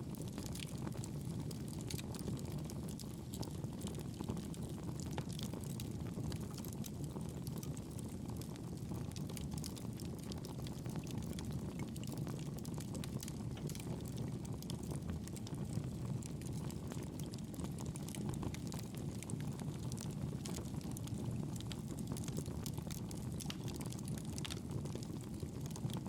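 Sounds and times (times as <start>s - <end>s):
burning wood crackling: 0.1s - 26.0s
flames rushing: 8.0s - 16.0s.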